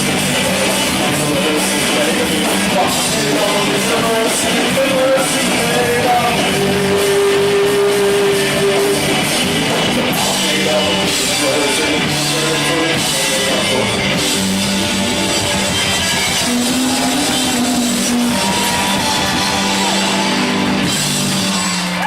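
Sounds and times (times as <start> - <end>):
drums: 0.0 - 22.0
electric guitars: 0.0 - 22.0.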